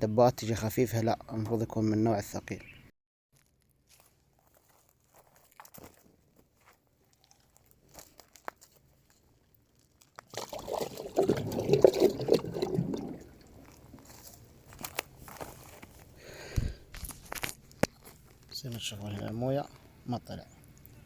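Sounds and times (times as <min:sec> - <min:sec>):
water pouring into plastic jug: 0:10.3 - 0:14.0.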